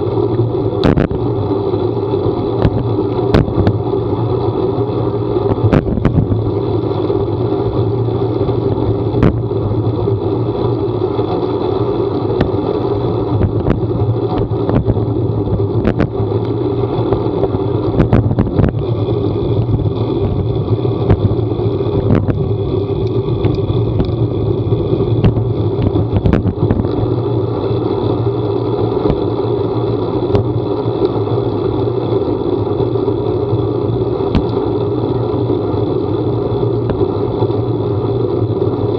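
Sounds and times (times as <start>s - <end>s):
vehicle driving low drone: 0.0s - 38.9s.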